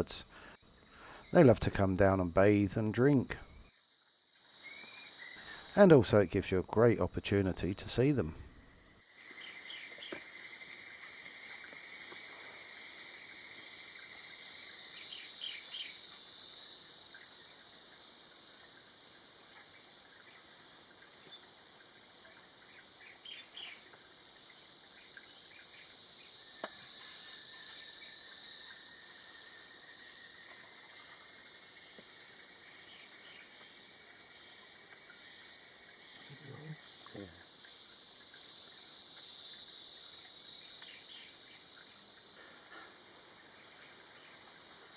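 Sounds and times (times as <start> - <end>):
high-pitched insect chorus: 0.0 - 44.9.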